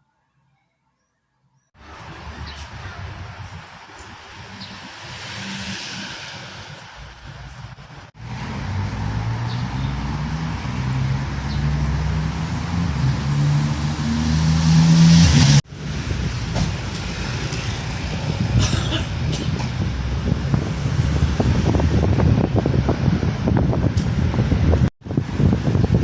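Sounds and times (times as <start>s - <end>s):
rumbling wind-like noise: 1.8s - 13.9s, 15.3s - 26.0s
engine revving up: 8.1s - 16.1s.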